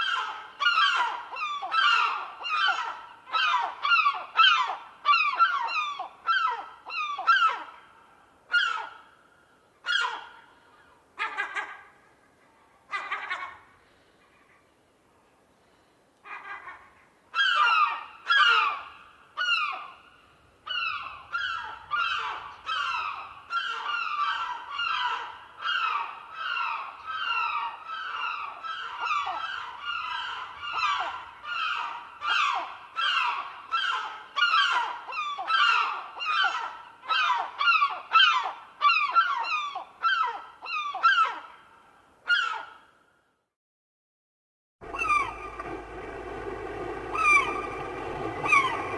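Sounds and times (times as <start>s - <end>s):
gull calling: 44.8s - 48.9s.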